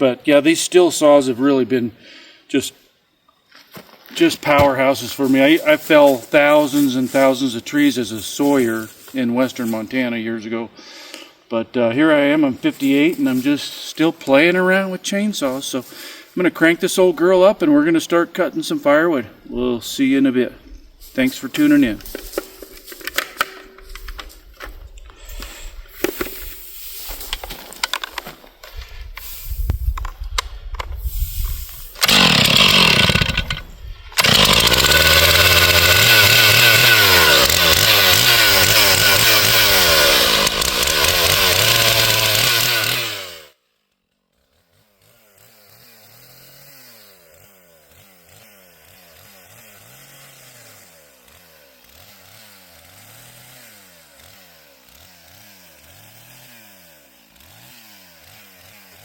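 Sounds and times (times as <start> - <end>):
chainsaw revving: 4.2 - 59.0
faint engine rising and falling: 31.7 - 43.4.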